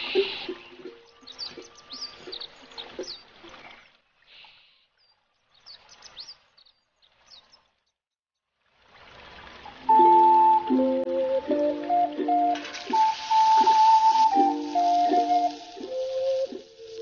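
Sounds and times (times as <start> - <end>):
small birds chirping: 0.0 - 8.0
soft hiss: 12.5 - 17.0.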